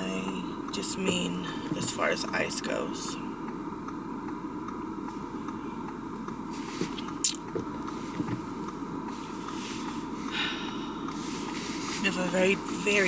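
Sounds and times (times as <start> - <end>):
road and engine noise in car: 0.0 - 13.0.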